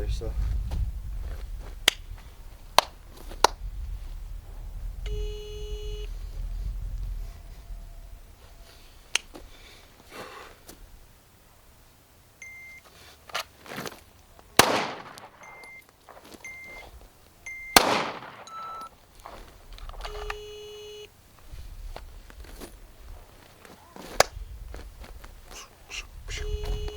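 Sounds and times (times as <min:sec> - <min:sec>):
long low beep: 0:05.0 - 0:06.2, 0:12.4 - 0:12.8, 0:15.4 - 0:15.8, 0:16.4 - 0:16.8, 0:17.5 - 0:17.8, 0:18.4 - 0:18.9, 0:20.0 - 0:21.1, 0:26.3 - 0:26.9
gunshots: 0:14.6 - 0:15.6, 0:17.7 - 0:18.9
short high electronic beeps: 0:15.4 - 0:15.8, 0:17.5 - 0:17.8, 0:18.4 - 0:18.9.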